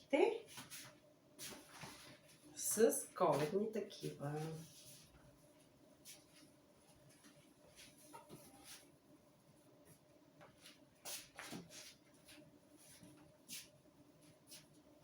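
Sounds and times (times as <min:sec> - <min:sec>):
kitchen towels rustling: 0:00.4 - 0:09.0.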